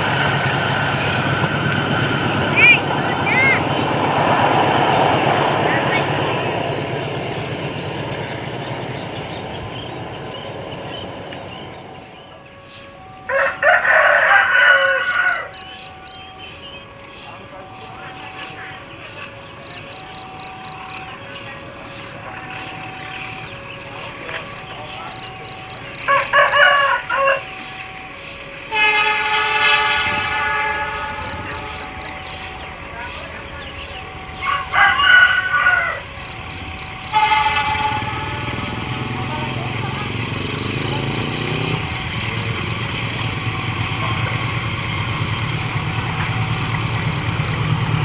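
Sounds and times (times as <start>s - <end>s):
passing train rumble: 0.0s - 48.0s
rooster crowing: 13.1s - 16.2s, 25.1s - 27.8s, 34.2s - 39.0s.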